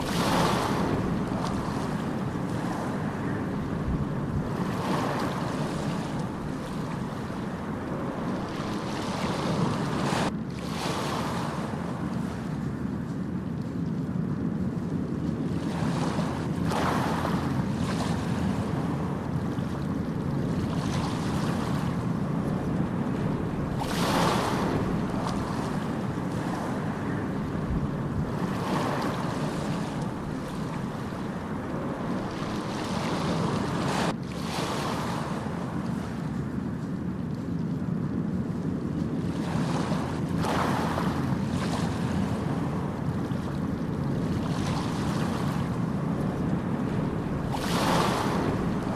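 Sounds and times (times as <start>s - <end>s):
breaking waves swishing: 0.0s - 11.6s, 20.5s - 36.1s, 39.4s - 48.9s
wave crashing: 0.0s - 11.8s, 20.4s - 36.1s, 39.3s - 48.9s
low rumble of waves: 0.0s - 48.9s.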